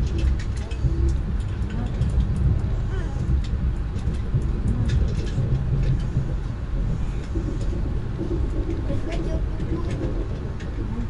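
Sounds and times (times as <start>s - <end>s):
train rolling rumble: 0.0s - 11.0s
wheel and rail clicks: 0.0s - 11.0s.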